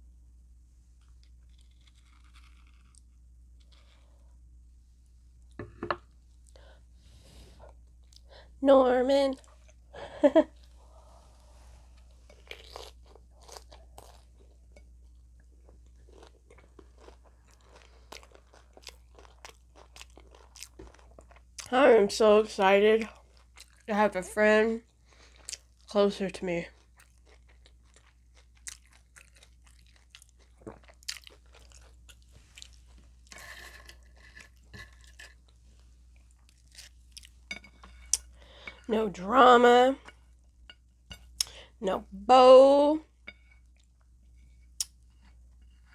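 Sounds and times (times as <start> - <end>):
chewing crunchy taco shell: 1.0 - 4.3, 12.0 - 21.7, 23.0 - 23.9, 24.8 - 25.9, 26.6 - 38.4.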